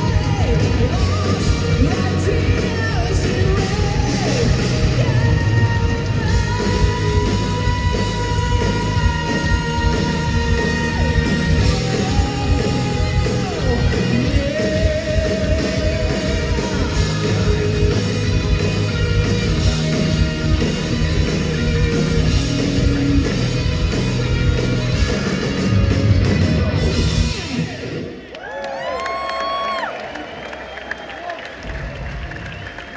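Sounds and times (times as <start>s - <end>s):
person singing: 0.0s - 18.6s
live heavy metal band: 0.0s - 28.3s.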